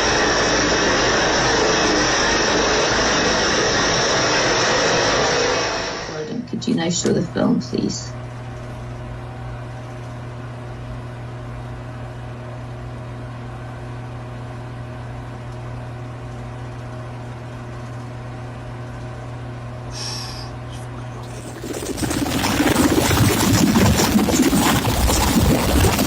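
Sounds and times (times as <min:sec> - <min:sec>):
low hum: 0:00.0 - 0:08.3, 0:20.0 - 0:26.0.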